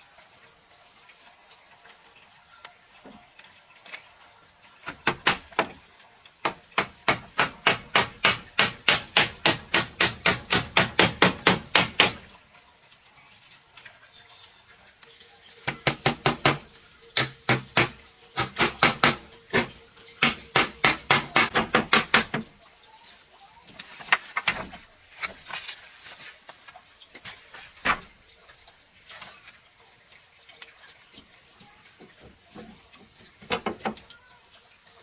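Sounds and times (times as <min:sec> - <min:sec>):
sharp knocks on wood: 0:06.4 - 0:12.3, 0:15.7 - 0:22.5.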